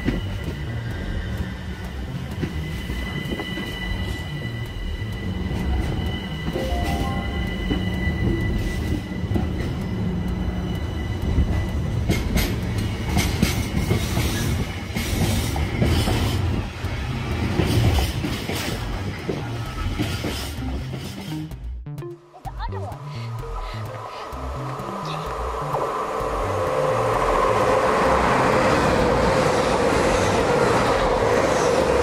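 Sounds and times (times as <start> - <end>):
high whine: 0.0 - 13.1, 22.2 - 32.0
train wheels rumbling on rail: 0.0 - 21.7, 23.0 - 32.0.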